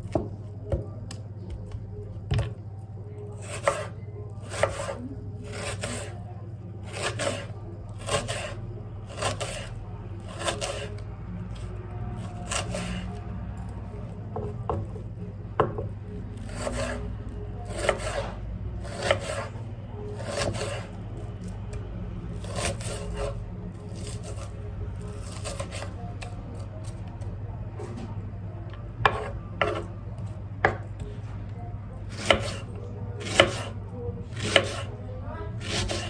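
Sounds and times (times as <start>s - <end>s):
knife slicing food: 3.4s - 6.2s, 6.8s - 13.3s, 16.4s - 19.6s, 20.2s - 21.6s, 22.4s - 27.0s, 29.0s - 30.0s, 32.0s - 35.0s, 35.6s - 36.0s.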